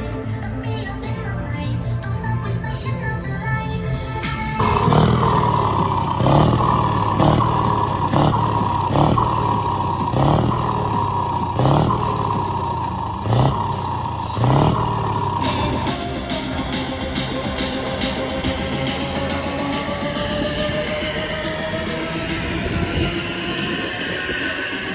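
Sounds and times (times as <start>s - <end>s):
truck engine revving: 4.5s - 16.1s.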